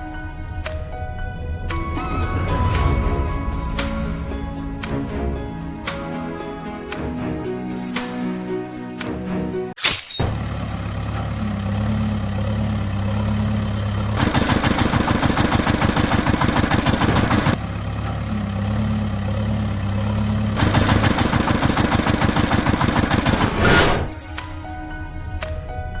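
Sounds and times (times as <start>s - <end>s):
engine idling hum: 10.3s - 23.5s
engine fast knocking run: 10.4s - 18.6s, 20.6s - 23.5s.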